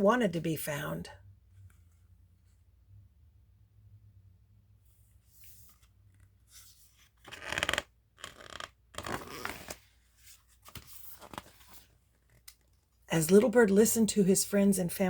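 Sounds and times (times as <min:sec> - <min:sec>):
book pages turning: 0:05.2 - 0:13.5.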